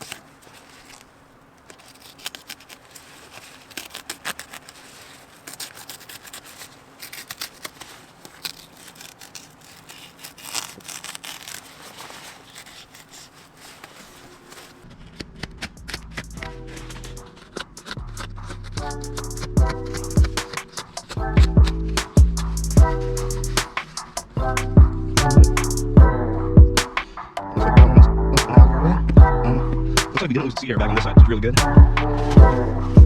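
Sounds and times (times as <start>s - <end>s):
razor blade cutting fabric: 1.8s - 14.8s
music: 15.4s - 33.0s.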